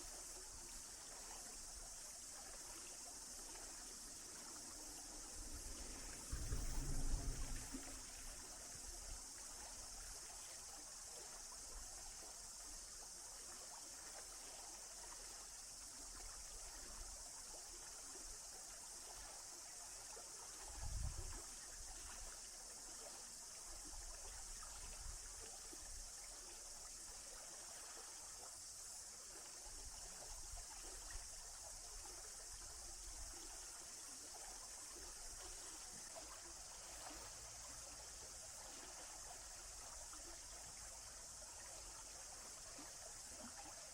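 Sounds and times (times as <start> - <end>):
steady high hiss: 0.0 - 13.2
small stream trickling: 0.0 - 43.9
low thump: 6.3 - 8.5.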